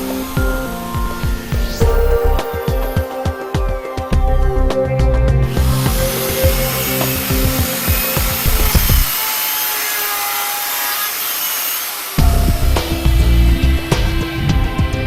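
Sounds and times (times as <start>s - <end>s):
power tool cutting metal: 0.0s - 3.5s, 5.4s - 14.0s
background music: 0.0s - 9.1s, 12.2s - 15.0s.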